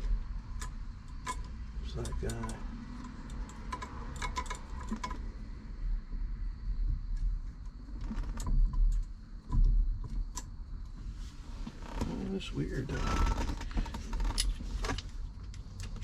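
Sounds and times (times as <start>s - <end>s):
small parts clicking and rattling: 0.6s - 5.2s.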